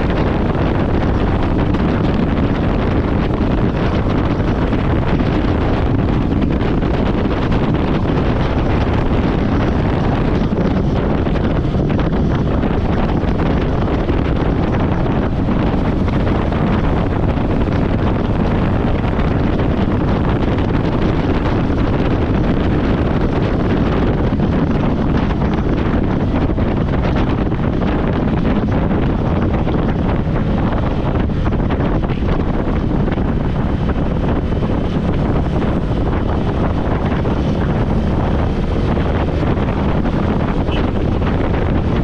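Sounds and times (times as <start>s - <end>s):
wind buffeting a microphone: 0.0s - 42.0s.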